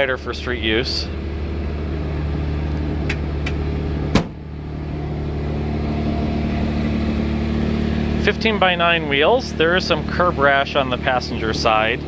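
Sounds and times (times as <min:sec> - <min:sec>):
car engine idling: 0:00.0 - 0:12.0
sharp thump: 0:03.1 - 0:04.5.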